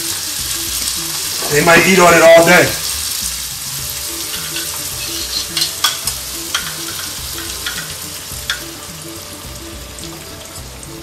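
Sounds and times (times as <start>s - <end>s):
food sizzling in a pan: 0.0s - 11.0s
utensil scraping and tapping pan: 4.2s - 8.7s.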